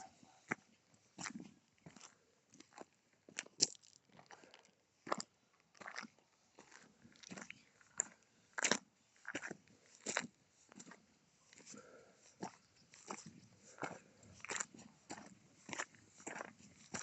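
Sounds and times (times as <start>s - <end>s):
footsteps crunching on gravel: 11.6s - 17.0s.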